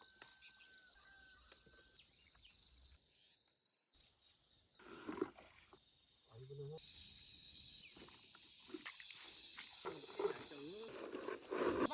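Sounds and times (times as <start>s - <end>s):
high-pitched insect chorus: 0.0s - 11.9s.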